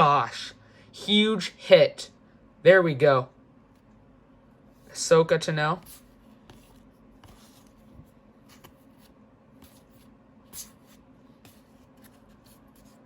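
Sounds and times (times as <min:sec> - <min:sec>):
cards rustling and sliding: 0:05.9 - 0:13.0.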